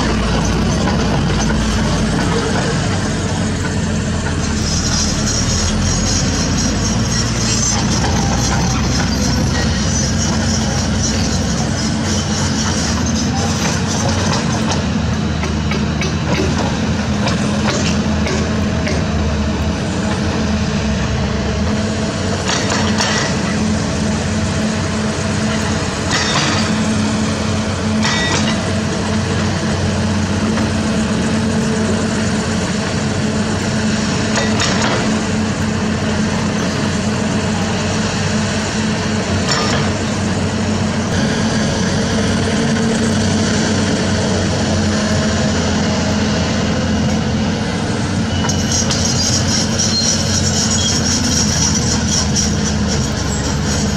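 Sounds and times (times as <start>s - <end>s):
diesel machinery running: 0.0s - 53.9s
metallic clanks and knocks: 25.5s - 27.0s, 28.0s - 31.8s, 33.6s - 37.0s, 39.3s - 40.3s.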